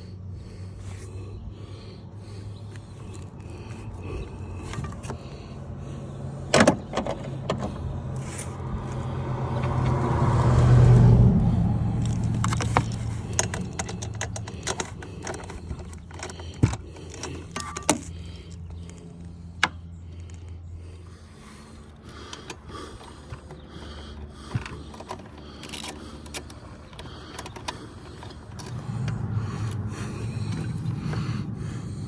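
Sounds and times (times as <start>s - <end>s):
low hum: 0.0s - 32.0s
metallic clinks of hand tools: 12.1s - 18.2s.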